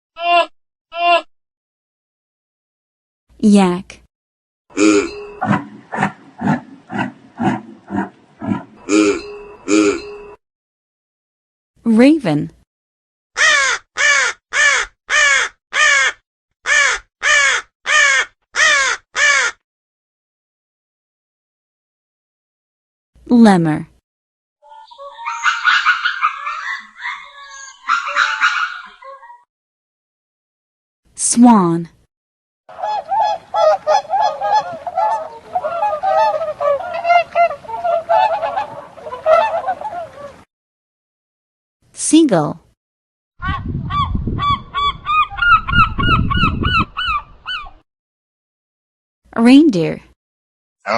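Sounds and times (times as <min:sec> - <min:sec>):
raven croaking: 0:04.7 - 0:10.3
swan honking: 0:04.7 - 0:10.4, 0:32.7 - 0:40.5.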